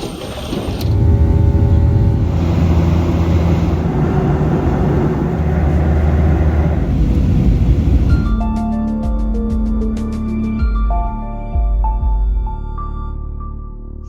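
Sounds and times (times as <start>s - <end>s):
vehicle rumbling in motion: 0.4s - 8.4s.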